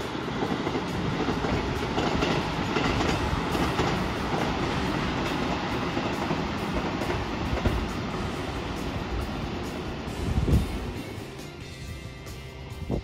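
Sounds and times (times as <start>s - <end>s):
train wheels on rail: 0.0s - 13.0s.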